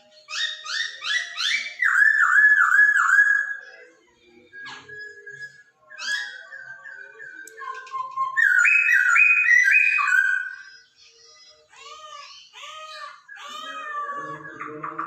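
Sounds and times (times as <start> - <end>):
bird singing whistled notes: 0.0 - 11.7.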